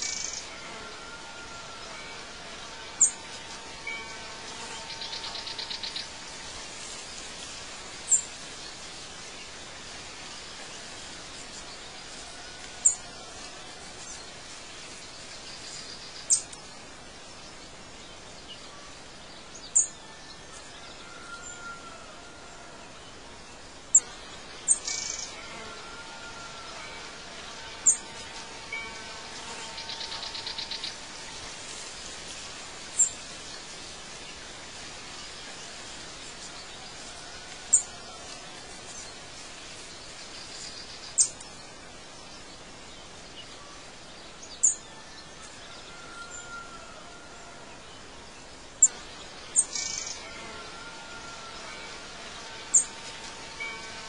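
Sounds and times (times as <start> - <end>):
steady hiss: 0.0 - 54.0
buzzing bird trill: 24.0 - 31.3, 48.8 - 54.0.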